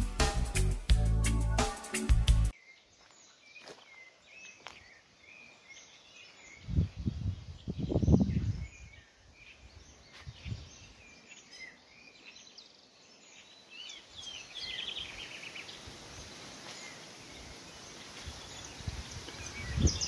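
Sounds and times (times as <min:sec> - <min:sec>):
birds chirping and trilling: 0:02.5 - 0:20.0
steady outdoor hiss: 0:04.2 - 0:20.0.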